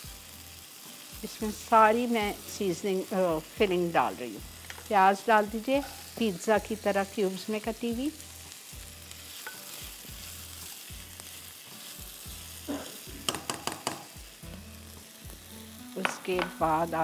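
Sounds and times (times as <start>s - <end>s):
food sizzling in a frying pan: 0.0s - 17.0s
spatula clicking against pan: 13.3s - 14.1s.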